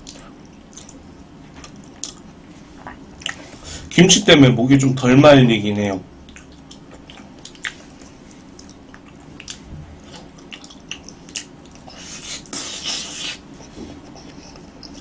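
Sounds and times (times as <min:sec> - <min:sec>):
wet mouth clicks chewing: 0:06.3 - 0:12.5
hissing mouthful: 0:11.8 - 0:13.5.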